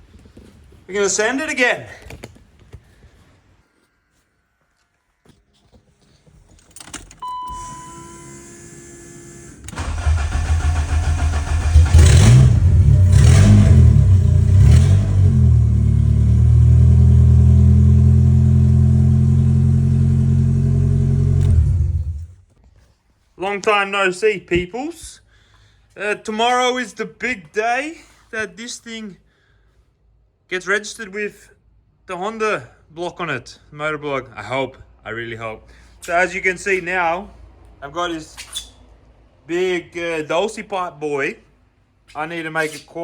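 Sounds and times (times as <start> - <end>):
short beep: 7.2 - 8.2
car engine cranking and revving: 9.7 - 22.4
car engine idling: 9.8 - 22.3.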